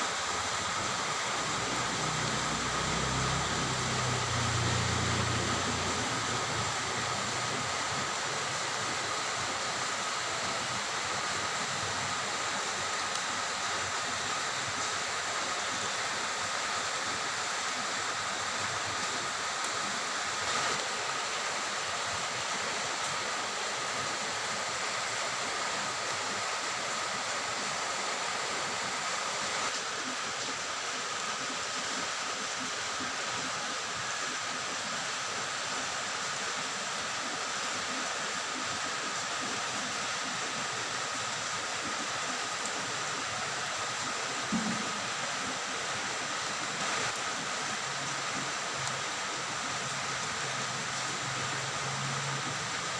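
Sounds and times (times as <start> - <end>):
rain falling: 0.0 - 52.9.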